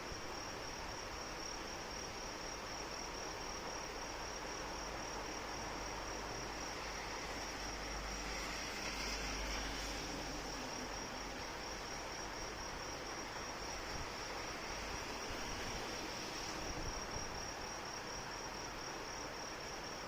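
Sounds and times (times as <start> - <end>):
crickets chirping: 0.0 - 20.0
rain hissing: 5.5 - 12.1, 13.2 - 17.1.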